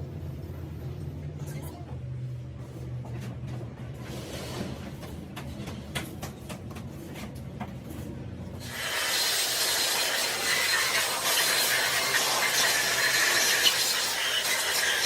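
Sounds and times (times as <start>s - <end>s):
loud steady hiss: 8.6s - 15.0s.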